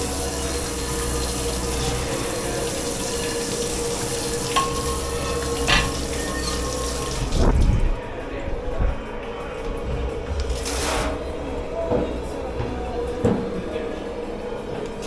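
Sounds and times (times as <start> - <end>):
tap water running into sink: 0.0 - 7.6.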